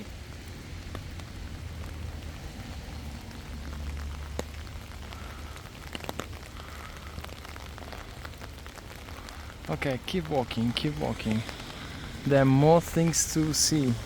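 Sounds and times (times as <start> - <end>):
light ticks: 4.3 - 4.6.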